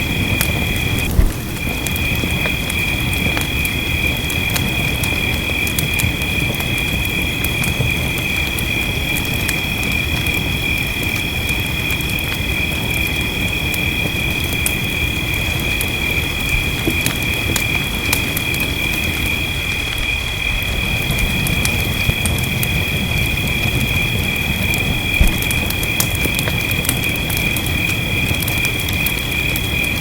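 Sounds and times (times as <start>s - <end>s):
night insects chirring: 0.0s - 30.0s
rain: 0.0s - 30.0s
wood fire crackling and popping: 0.0s - 30.0s.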